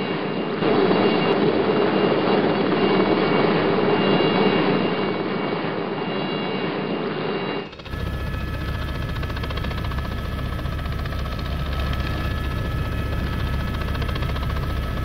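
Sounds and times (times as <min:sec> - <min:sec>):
aircraft engine running: 0:00.0 - 0:15.0.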